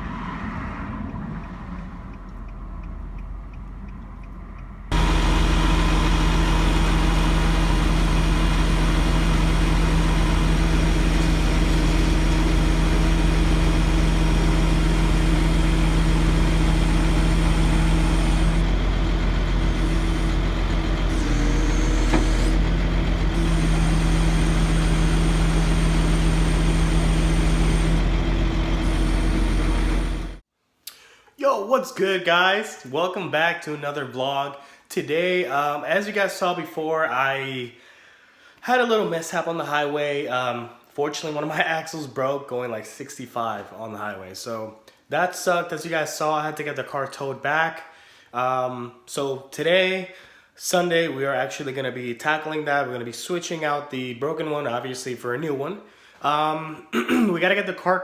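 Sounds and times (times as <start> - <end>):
vehicle engine idling: 1.0 - 30.4.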